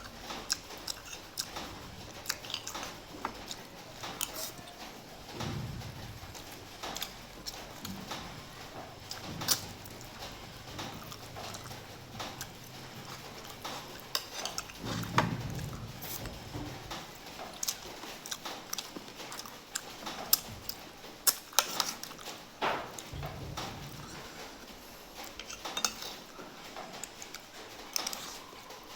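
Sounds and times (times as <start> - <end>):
chewing and mouth smacking: 0.0 - 16.3
utensils clicking on a dish: 0.0 - 28.9.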